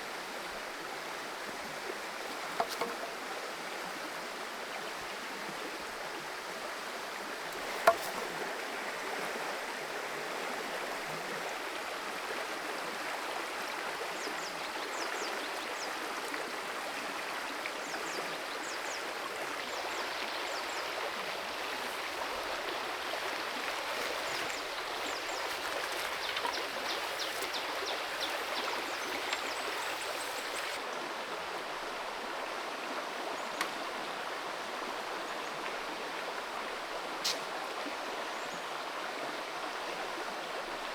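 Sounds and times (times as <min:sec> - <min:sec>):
creek water flowing: 0:00.0 - 0:40.9
sharp click: 0:37.2 - 0:37.5.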